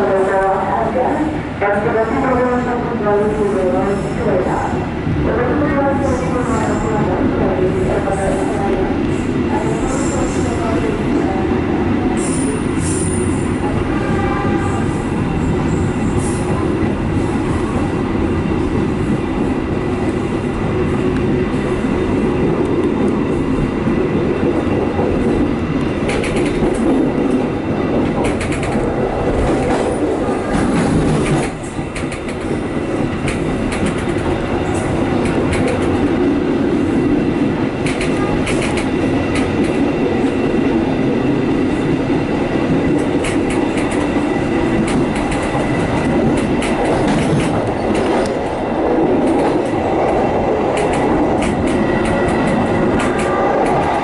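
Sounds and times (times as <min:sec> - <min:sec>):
train wheels rumbling on rail: 0:00.0 - 0:54.0
wheels clicking over rail joints: 0:27.9 - 0:36.1, 0:44.8 - 0:54.0.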